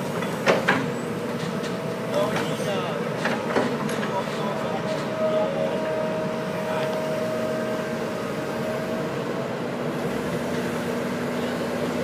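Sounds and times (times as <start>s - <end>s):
heavy diesel engine rumbling: 0.0s - 12.0s.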